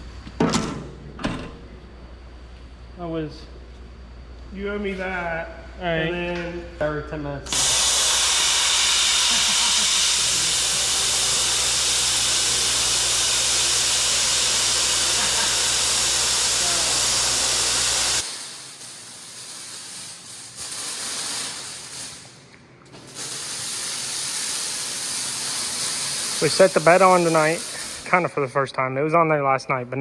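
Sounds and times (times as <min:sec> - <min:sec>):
workshop noise: 0:00.0 - 0:29.6
low electrical hum: 0:00.0 - 0:30.0
plasma cutter air hiss: 0:07.5 - 0:22.4, 0:23.0 - 0:28.8.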